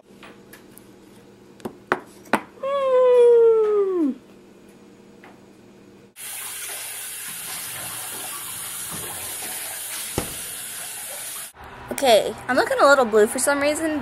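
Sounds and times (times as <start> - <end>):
kitchen tap running water: 6.2 - 11.6.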